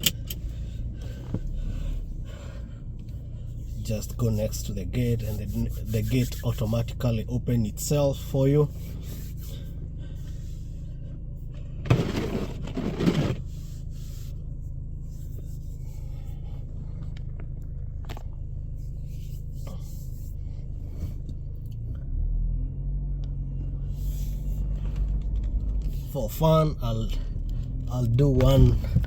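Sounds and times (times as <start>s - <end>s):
car engine humming: 0.0s - 29.0s
loud scraping rustle: 11.9s - 14.3s.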